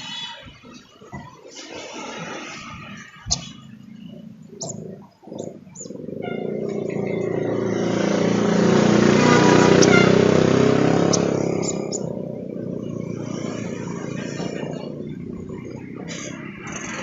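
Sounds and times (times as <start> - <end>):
vehicle passing by: 1.8 - 17.0
bird chirps: 2.9 - 7.6, 9.6 - 13.0.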